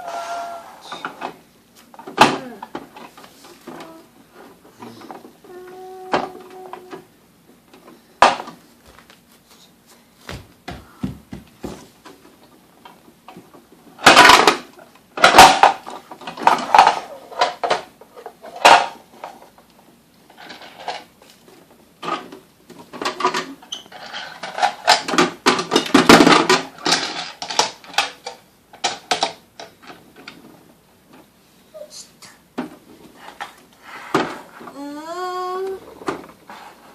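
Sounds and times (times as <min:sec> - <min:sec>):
hard objects clicking and rattling: 0:12.8 - 0:19.6, 0:22.0 - 0:30.5.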